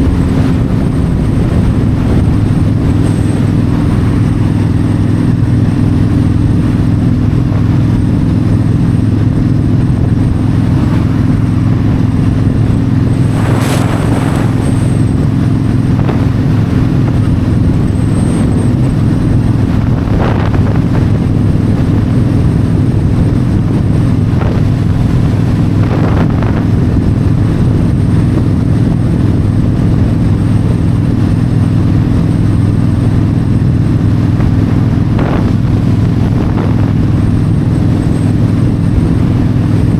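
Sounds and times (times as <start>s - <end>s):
motorcycle engine cruising: 0.0s - 28.4s
wind rushing: 8.4s - 27.3s.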